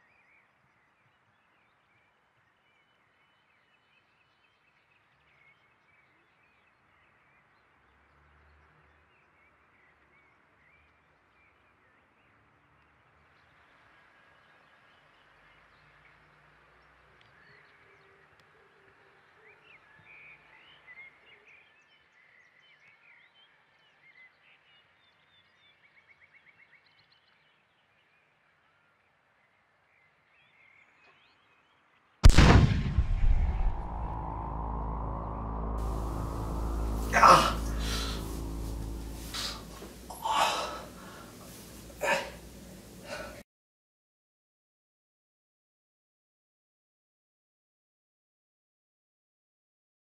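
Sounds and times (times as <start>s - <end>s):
outdoor background hiss: 35.6s - 43.4s.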